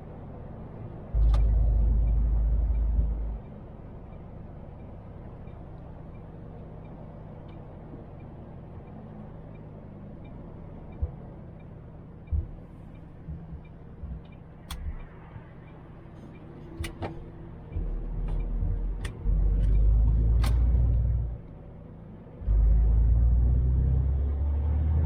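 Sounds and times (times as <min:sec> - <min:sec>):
diesel engine idling: 0:00.0 - 0:23.4
low thumps: 0:01.2 - 0:03.5, 0:12.2 - 0:15.6
faint regular ticking: 0:01.2 - 0:20.1
sharp clicks: 0:13.3 - 0:21.0.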